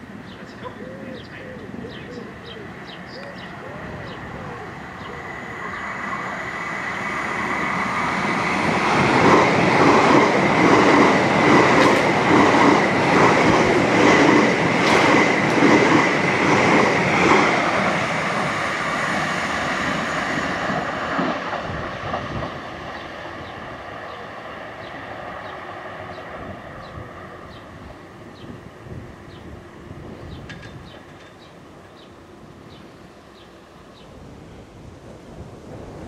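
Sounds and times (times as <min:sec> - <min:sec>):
high train whine: 0:00.0 - 0:36.0
wheels beating over rails: 0:08.1 - 0:18.6.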